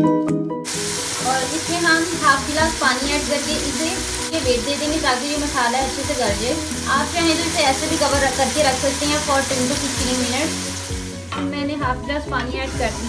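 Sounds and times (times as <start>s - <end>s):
background music: 0.0s - 13.0s
vegetables sizzling in hot oil: 0.7s - 13.0s.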